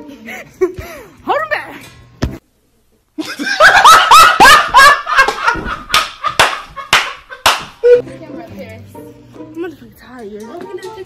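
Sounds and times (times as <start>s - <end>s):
loud laughter: 3.2s - 8.0s
sharp slaps: 5.2s - 7.8s.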